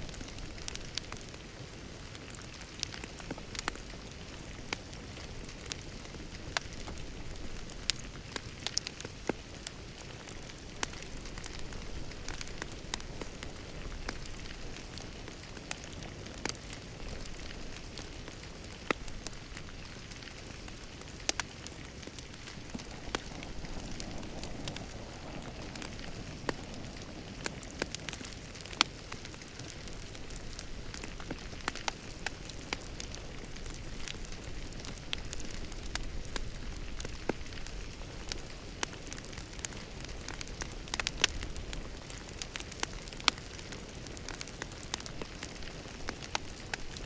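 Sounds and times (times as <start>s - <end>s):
wood fire crackling: 0.0s - 47.0s.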